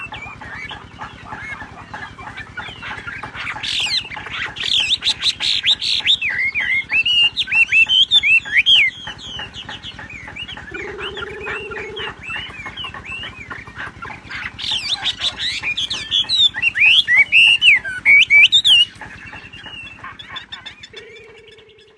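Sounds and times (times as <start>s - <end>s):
songbird chirping and twittering: 0.0s - 21.9s
short low steady tone: 10.8s - 12.1s.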